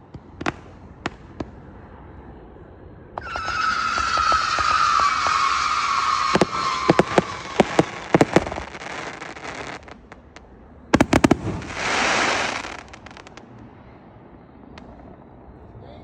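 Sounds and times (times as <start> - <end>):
fireworks bangs: 0.0 - 1.8, 3.2 - 13.6
fireworks hissing crackle: 3.2 - 13.6.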